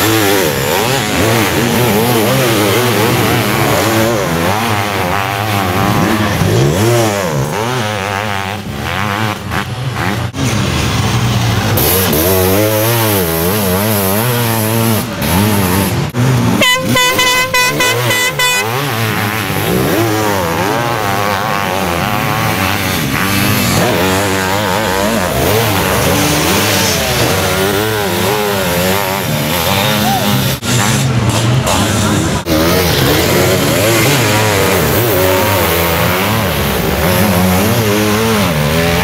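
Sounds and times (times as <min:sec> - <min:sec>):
racing engines revving: 0:00.0 - 0:39.0
air horn: 0:16.5 - 0:19.4.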